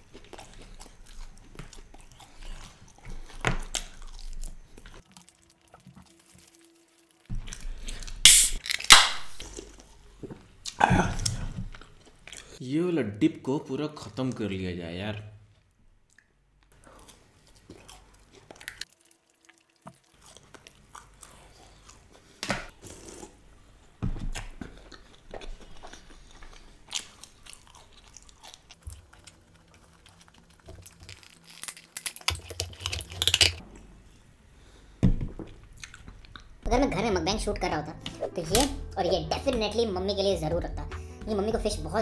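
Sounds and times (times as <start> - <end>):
chewing and crunching food: 0.0 - 12.6, 16.1 - 33.6, 35.4 - 36.7.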